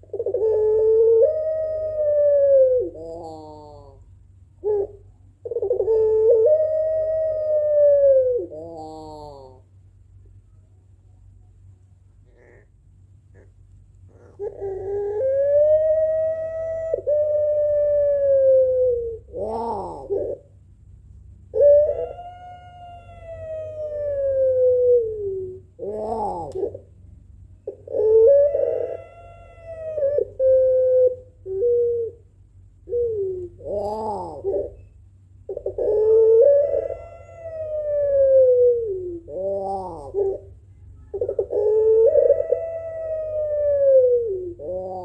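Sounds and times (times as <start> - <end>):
dove cooing: 0.0 - 9.8, 12.2 - 20.6, 21.5 - 27.0, 27.6 - 45.0
steady low hum: 0.0 - 45.0.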